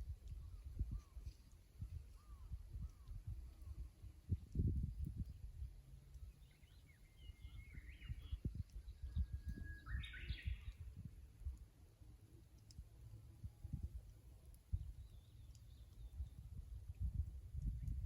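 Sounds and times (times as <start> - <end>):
bush warbler singing: 6.2 - 11.0
short bird chirps: 6.5 - 10.8.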